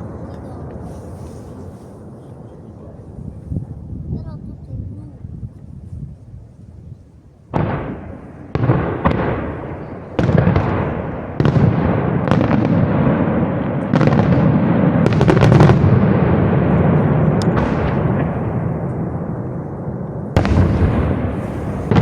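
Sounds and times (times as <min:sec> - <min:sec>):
fireworks crackling: 0:00.0 - 0:02.5, 0:07.5 - 0:22.0
fireworks booming: 0:00.0 - 0:03.1, 0:07.5 - 0:22.0
deep rolling rumble: 0:16.2 - 0:22.0.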